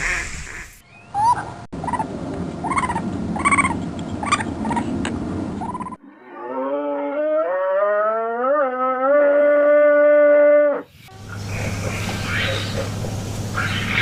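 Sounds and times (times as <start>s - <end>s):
rough rumbling background noise: 0.0s - 6.0s, 11.0s - 14.0s.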